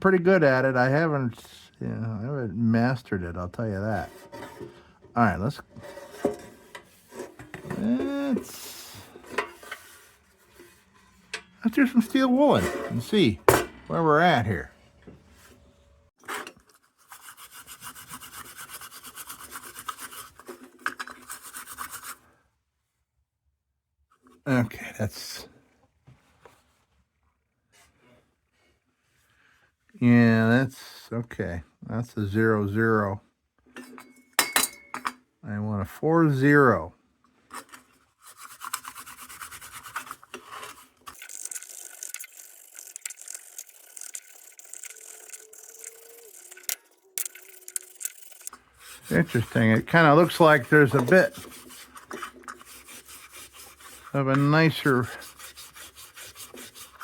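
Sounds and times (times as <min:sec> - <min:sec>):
steel wool scrubbing metal: 0:05.7 - 0:14.5, 0:16.4 - 0:22.2, 0:37.7 - 0:57.0.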